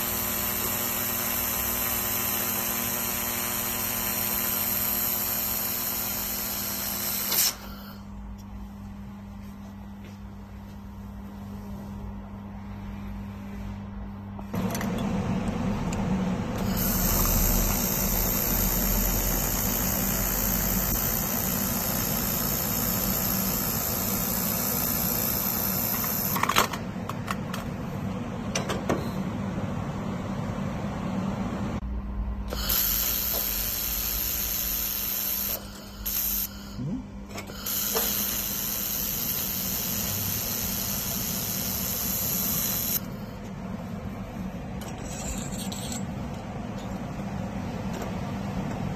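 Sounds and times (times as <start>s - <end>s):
loud welding hiss: 0.0s - 7.6s, 16.6s - 26.4s, 32.6s - 36.7s, 37.6s - 43.1s
welding machine hum: 0.0s - 8.0s, 14.5s - 28.0s, 32.5s - 43.6s.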